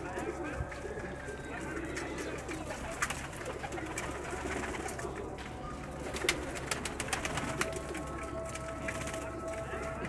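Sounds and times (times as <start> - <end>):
pigeons cooing: 0.0 - 10.0.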